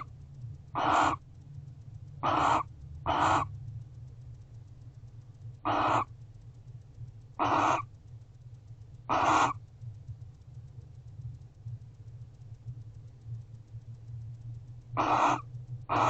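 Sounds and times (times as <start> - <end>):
low hum: 0.0 - 16.0
owl harsh calls: 0.8 - 1.2, 2.2 - 3.5, 5.6 - 6.1, 7.4 - 7.9, 9.1 - 9.6, 15.0 - 16.0.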